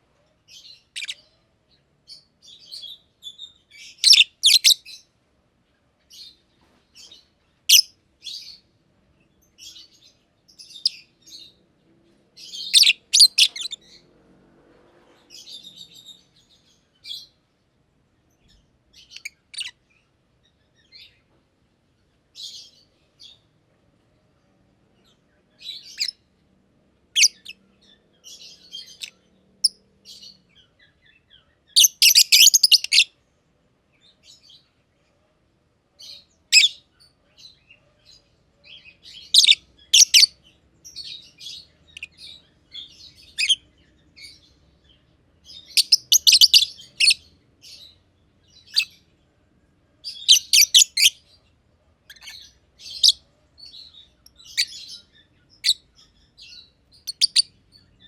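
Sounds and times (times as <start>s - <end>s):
lovebirds chirping: 0.0s - 14.2s, 15.0s - 26.4s, 27.0s - 35.3s, 35.9s - 58.0s
rapid chattering chirps: 12.8s - 13.8s, 45.8s - 47.2s.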